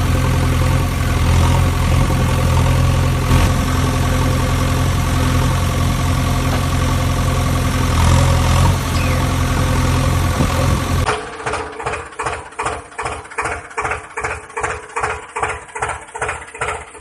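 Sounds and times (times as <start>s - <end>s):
motor droning: 0.0s - 11.1s.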